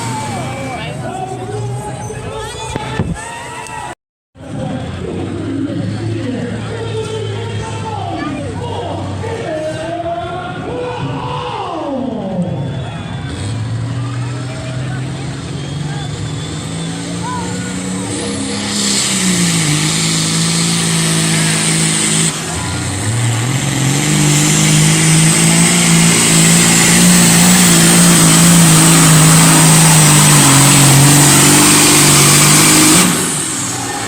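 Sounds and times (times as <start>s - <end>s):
tractor engine running hard: 0.0s - 1.9s, 12.9s - 34.0s.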